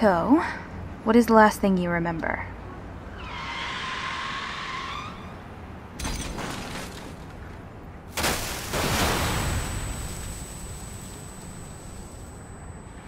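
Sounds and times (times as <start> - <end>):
tyre screech: 3.1 - 5.5
car crash impact: 6.0 - 7.3, 8.1 - 11.7
high ringing tone: 10.4 - 13.0.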